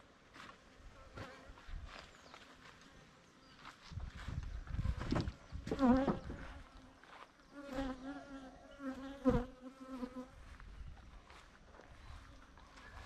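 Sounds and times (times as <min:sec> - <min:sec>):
bees buzzing: 0:05.6 - 0:10.6.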